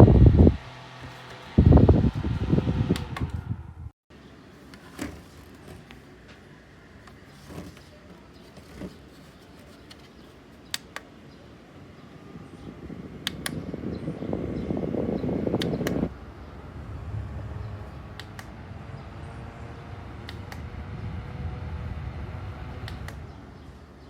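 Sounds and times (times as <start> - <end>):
fan motor hum: 0.0 - 3.9, 11.2 - 24.0
fan airflow buffeting microphone: 0.0 - 24.0.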